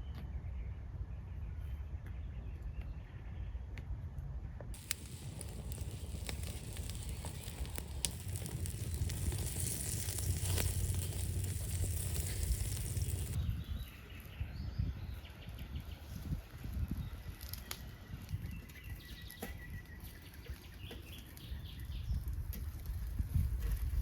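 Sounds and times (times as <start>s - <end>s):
food sizzling over fire: 4.8s - 13.4s
fire crackling pops: 4.8s - 14.3s, 16.2s - 24.0s.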